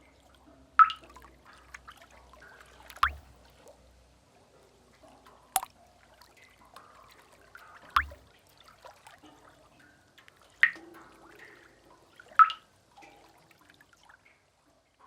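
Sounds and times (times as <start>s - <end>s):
faint water drips: 0.0s - 3.4s, 4.5s - 14.4s
loud water drops plinking: 2.9s - 3.3s, 8.0s - 8.2s.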